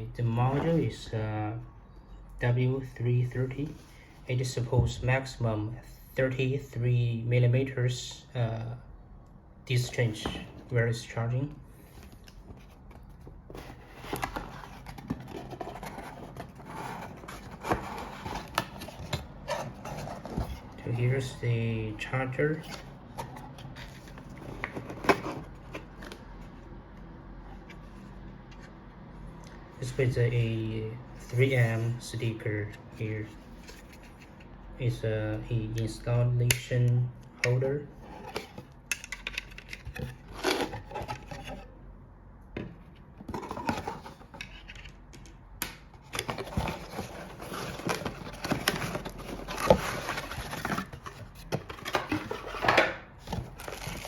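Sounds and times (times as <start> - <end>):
packaging rustling: 12.0 - 20.8, 46.0 - 54.0.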